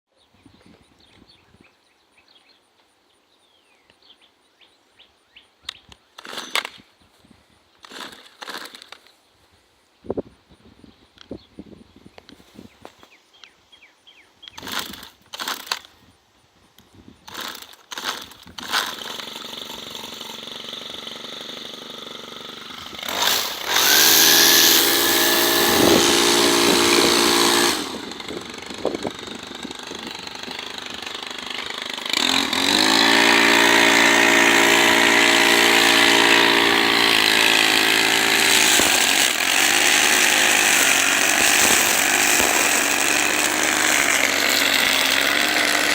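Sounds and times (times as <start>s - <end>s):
brushcutter engine idling and revving: 6.0s - 6.9s, 7.8s - 9.1s, 14.5s - 16.0s, 17.2s - 45.9s
starter cord pulls: 6.2s - 6.9s, 7.8s - 9.1s, 14.5s - 16.0s, 17.3s - 21.0s, 22.7s - 45.9s.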